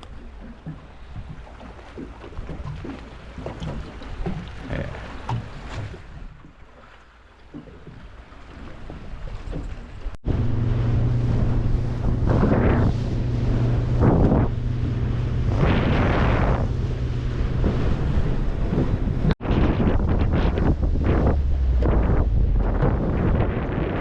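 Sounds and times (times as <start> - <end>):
water surging: 0.0 - 24.0
boat engine running: 7.6 - 24.0
wind buffeting microphone: 8.6 - 24.0.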